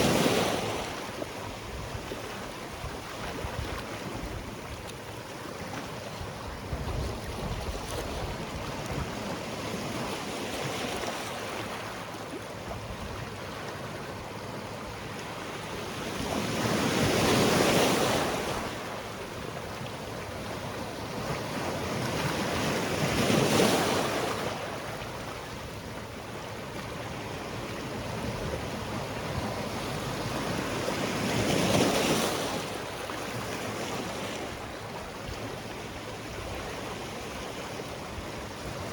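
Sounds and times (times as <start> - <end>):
waves breaking on rocks: 20.2 - 25.4.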